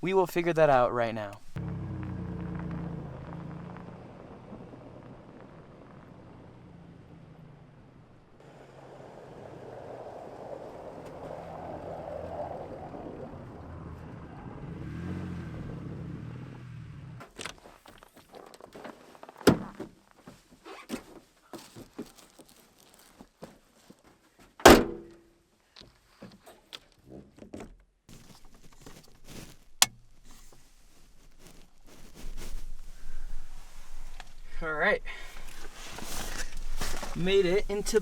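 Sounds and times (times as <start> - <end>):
truck engine and road noise: 0.0 - 18.2, 24.6 - 25.2, 28.1 - 38.0
knocks and thunks of gear: 19.4 - 20.0, 24.6 - 25.2
heavy door slam: 24.7 - 25.1.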